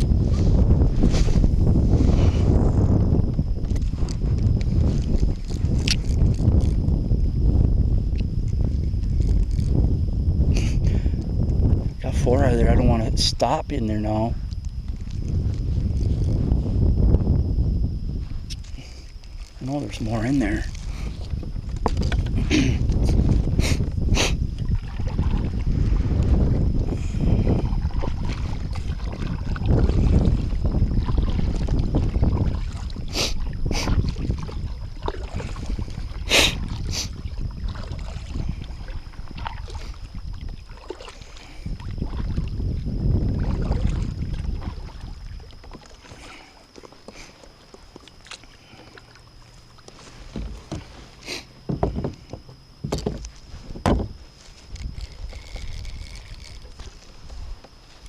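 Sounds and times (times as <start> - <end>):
wind rumbling on microphone: 0.0 - 58.0
knocks on kayak: 51.7 - 54.1.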